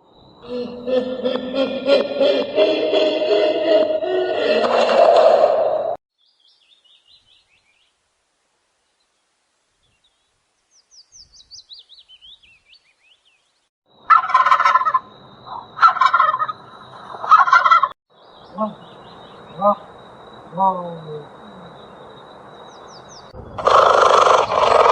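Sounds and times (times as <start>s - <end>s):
faint high bird chirps: 9.8s - 14.1s
loud bird calls: 14.0s - 24.9s.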